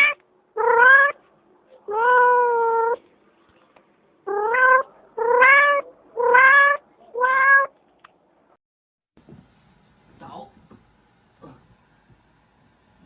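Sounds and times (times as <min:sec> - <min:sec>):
cat meowing: 0:00.0 - 0:01.2, 0:01.9 - 0:03.0, 0:04.2 - 0:07.8.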